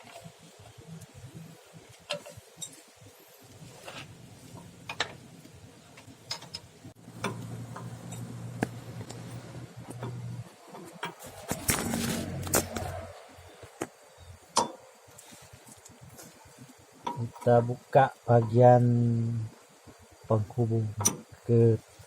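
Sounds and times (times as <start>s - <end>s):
steady low hum: 0.0s - 22.0s
metallic clicks of hand tools: 6.3s - 8.3s.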